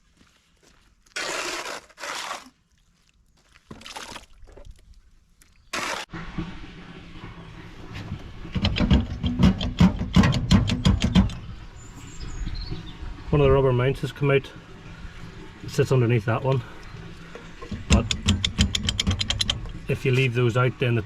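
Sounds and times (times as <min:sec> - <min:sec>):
diesel engine running: 0:06.1 - 0:21.0
fast rhythmic knocking: 0:17.7 - 0:19.6.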